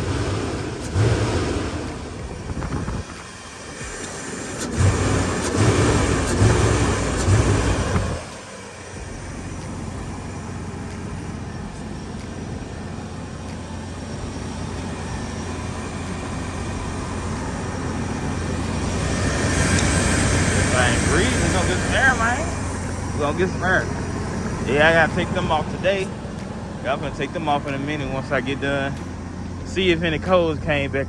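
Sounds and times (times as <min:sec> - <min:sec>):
engine running rough then idling: 0:00.0 - 0:31.0.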